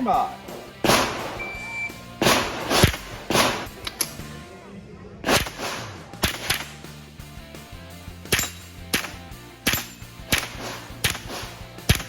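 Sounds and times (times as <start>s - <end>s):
rifle shots: 0.8s - 1.4s, 2.2s - 4.2s, 5.2s - 6.8s, 8.3s - 12.0s.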